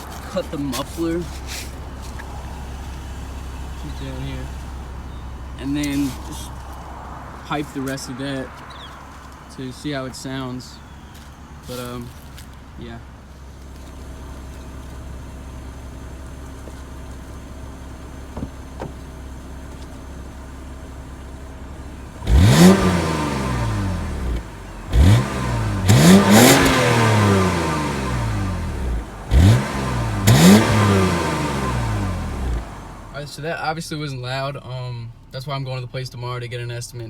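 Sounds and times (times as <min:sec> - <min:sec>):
car engine idling and revving: 0:00.0 - 0:37.0.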